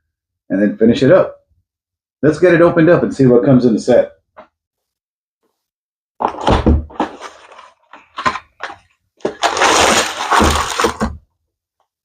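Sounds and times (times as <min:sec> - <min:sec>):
cardboard box thump: 0:06.2 - 0:07.6, 0:08.2 - 0:11.2
cardboard rustling: 0:06.2 - 0:11.2.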